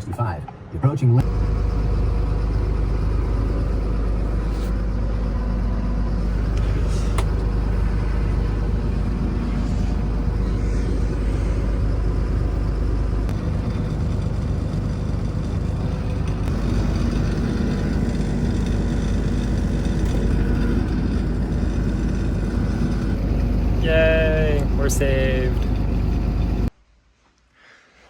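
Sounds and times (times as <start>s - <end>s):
road noise: 0.0s - 26.7s
motor vehicles rumbling: 0.5s - 26.7s.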